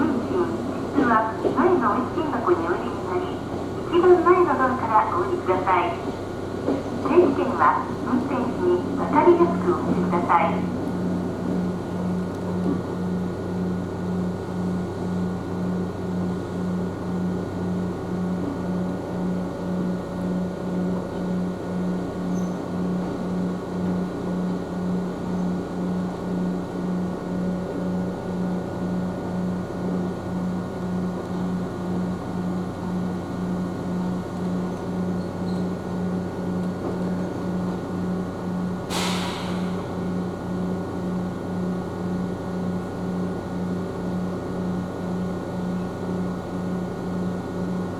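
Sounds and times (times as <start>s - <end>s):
train equipment humming: 0.0s - 47.9s
air hiss: 38.9s - 39.9s.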